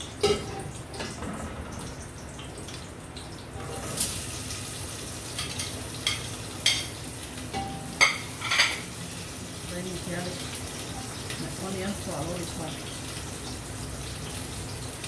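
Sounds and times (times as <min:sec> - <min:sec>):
vegetables sizzling in hot oil: 0:03.1 - 0:15.0.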